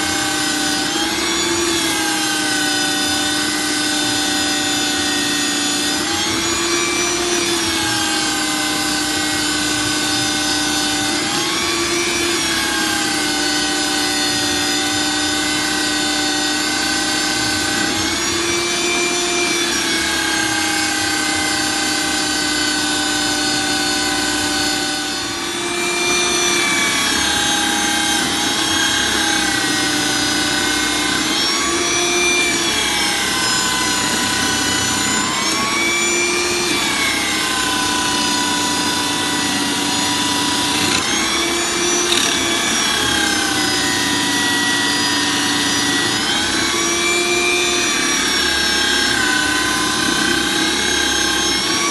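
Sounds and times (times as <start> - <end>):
electric drill motor whine: 0.0 - 51.9
coconut grating scrape: 40.4 - 42.7.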